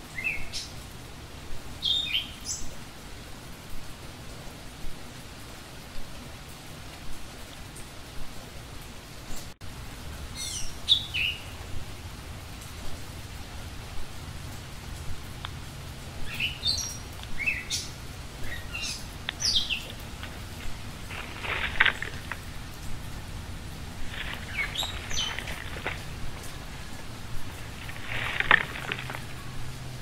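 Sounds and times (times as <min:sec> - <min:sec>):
small birds chirping: 0:00.0 - 0:00.8, 0:01.8 - 0:02.8, 0:10.3 - 0:12.0, 0:15.0 - 0:30.0
low background hiss: 0:00.0 - 0:30.0.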